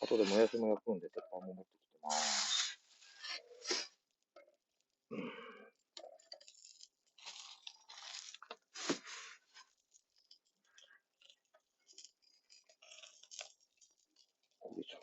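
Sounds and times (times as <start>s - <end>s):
rustling and scraping of cooking gear: 5.9s - 15.0s.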